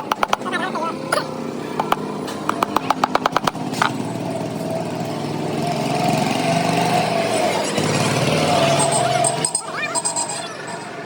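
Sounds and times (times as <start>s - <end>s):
sharp knocks: 0.0s - 0.6s, 1.8s - 4.0s.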